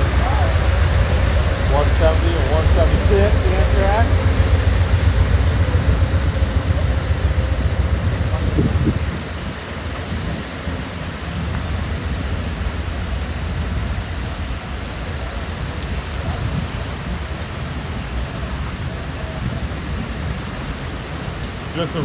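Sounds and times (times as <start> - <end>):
low rumble: 0.0 - 14.4
steady rain falling: 0.0 - 22.0.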